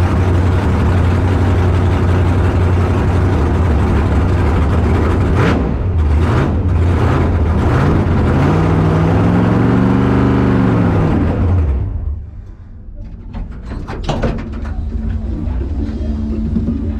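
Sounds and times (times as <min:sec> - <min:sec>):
race car engine revving: 0:00.0 - 0:12.4.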